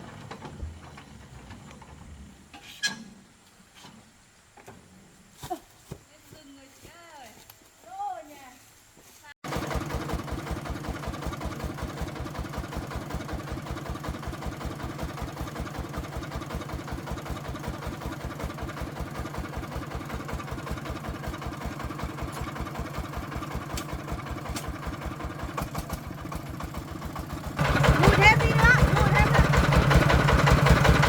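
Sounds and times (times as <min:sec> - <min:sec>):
diesel engine idling: 0:09.4 - 0:31.0.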